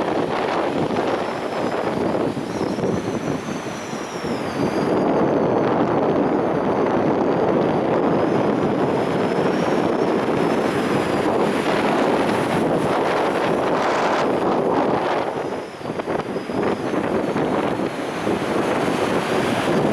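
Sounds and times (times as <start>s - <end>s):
storm wind buffeting microphone: 0.0s - 19.9s
heavy surf breaking: 8.6s - 19.9s.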